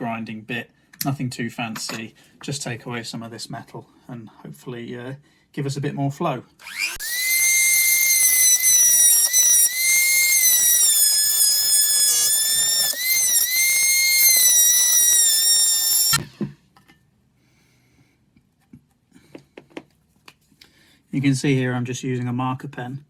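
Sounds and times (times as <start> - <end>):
rotary tool grinding metal: 6.6 - 16.2.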